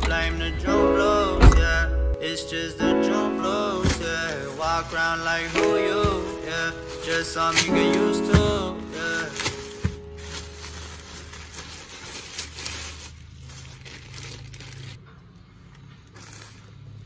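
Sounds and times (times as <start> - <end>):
plastic mailer bag crinkling: 3.4 - 15.0, 16.1 - 16.8
wrapping rustling: 3.5 - 15.0, 16.0 - 17.0.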